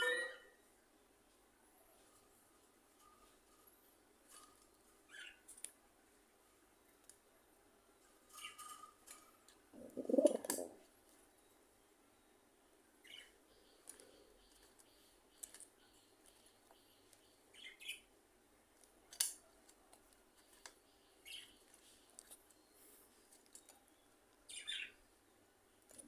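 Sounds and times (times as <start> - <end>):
faint bird chirps: 1.8 - 5.6, 11.2 - 18.2, 20.4 - 26.0.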